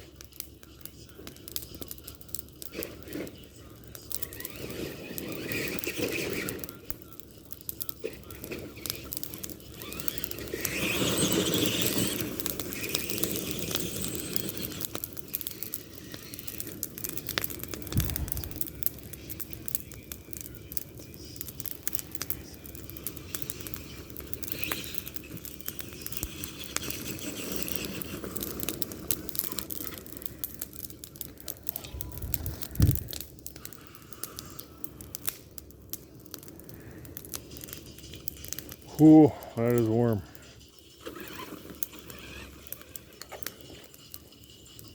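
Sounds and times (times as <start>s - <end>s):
toy truck drivetrain whining: 4.0s - 6.8s, 7.7s - 20.4s, 21.3s - 35.2s, 40.2s - 44.9s
low thumps: 17.9s - 18.6s, 32.1s - 33.1s.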